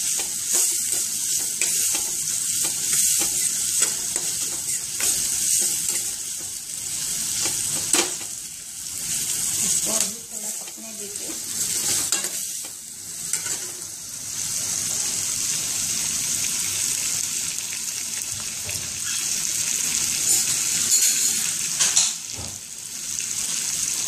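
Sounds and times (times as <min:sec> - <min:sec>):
steel spoon scraping pan: 0:00.0 - 0:06.4
vegetables sizzling in hot oil: 0:00.0 - 0:24.0.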